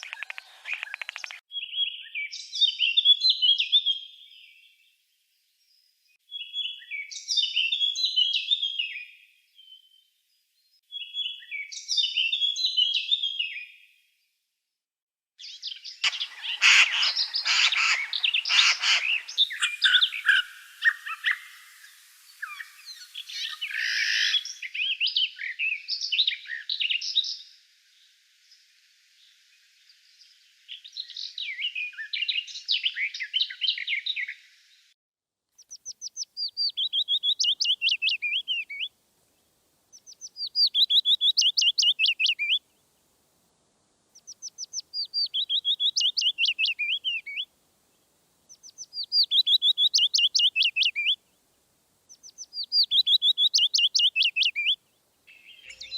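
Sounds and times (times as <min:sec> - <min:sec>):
birds chirping and trilling: 0:00.0 - 0:04.5, 0:15.4 - 0:28.6, 0:39.9 - 0:42.6, 0:44.2 - 0:47.4, 0:48.5 - 0:51.2, 0:52.1 - 0:55.9
bird song phrase: 0:00.0 - 0:14.0, 0:15.4 - 0:28.1, 0:30.0 - 0:34.7, 0:35.6 - 0:38.9, 0:39.9 - 0:42.6, 0:44.2 - 0:47.5, 0:48.5 - 0:51.2, 0:52.1 - 0:55.9
background hiss: 0:15.8 - 0:26.2, 0:26.8 - 0:31.5, 0:35.6 - 0:55.9.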